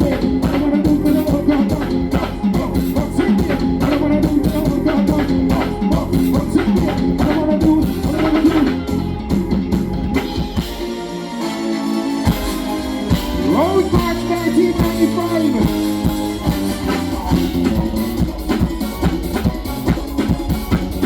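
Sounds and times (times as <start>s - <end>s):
person singing: 0.0s - 8.8s, 13.3s - 18.2s
live band music: 0.0s - 21.0s.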